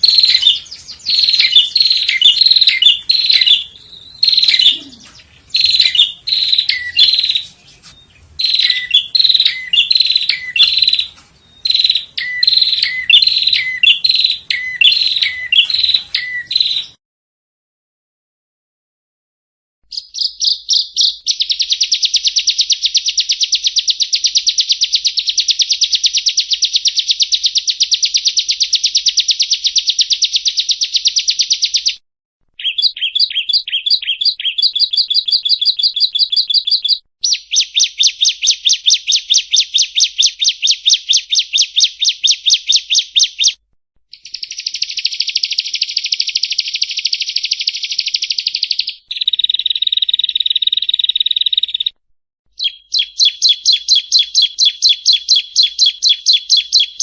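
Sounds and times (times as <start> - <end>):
bird chirping rapidly: 0.0 - 17.0, 19.9 - 32.0, 32.6 - 52.0, 52.6 - 57.0.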